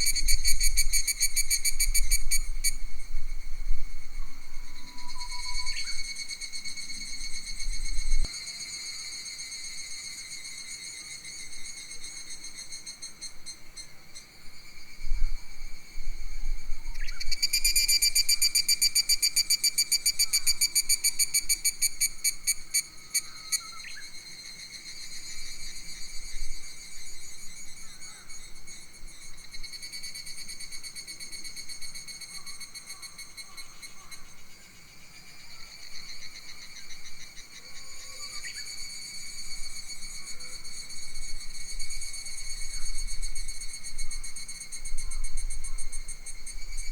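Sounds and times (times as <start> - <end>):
insects trilling: 0.0 - 3.5, 4.4 - 46.9
rapidly pulsing insect call: 0.0 - 46.9
wind rumble on microphone: 1.7 - 6.0, 7.2 - 8.3, 15.0 - 17.4.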